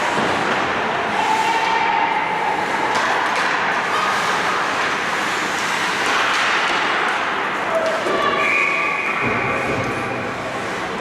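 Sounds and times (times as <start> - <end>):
skates scraping on ice: 0.0 - 11.0
hockey stick or puck clicks: 4.8 - 7.2.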